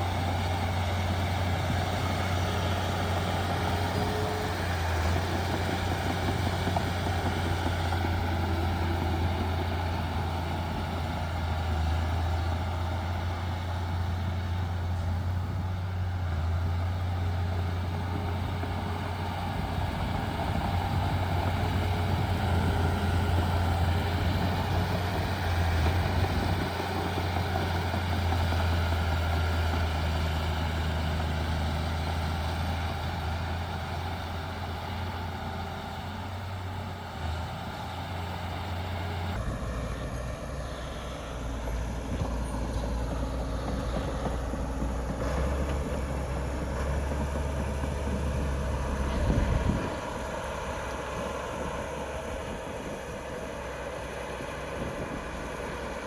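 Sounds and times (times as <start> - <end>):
heavy diesel machinery engine hum: 0.0 - 56.0.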